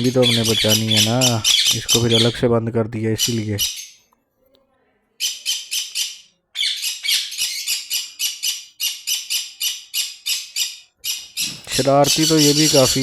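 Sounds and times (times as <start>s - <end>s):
parrots squawking: 0.0s - 2.4s, 3.2s - 4.0s, 5.2s - 13.0s.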